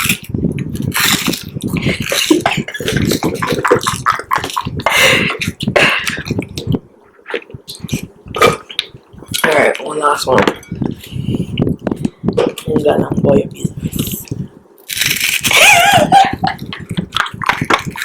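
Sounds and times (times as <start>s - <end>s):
wet mouth sounds: 0.0s - 9.4s
child chewing and crunching ice: 0.0s - 10.2s, 13.9s - 18.0s.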